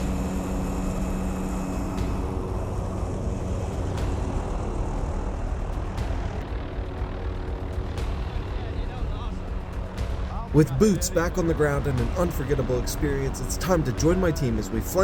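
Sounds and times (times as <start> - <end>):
humming tone: 0.0 - 8.1
helicopter engine and rotors: 0.0 - 15.0.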